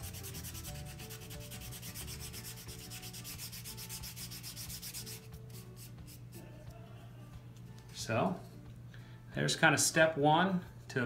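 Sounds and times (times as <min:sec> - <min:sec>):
sandpaper rubbing on wood: 0:00.0 - 0:06.2.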